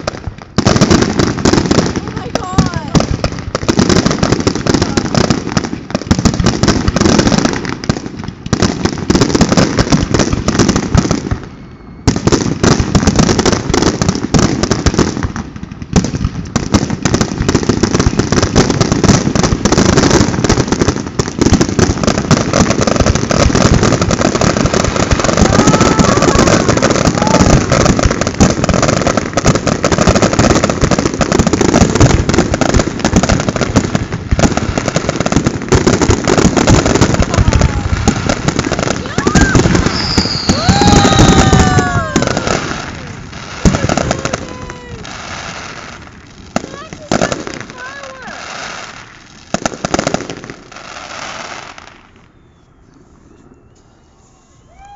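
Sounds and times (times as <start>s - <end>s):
fireworks bangs and crackle: 0.0s - 54.9s.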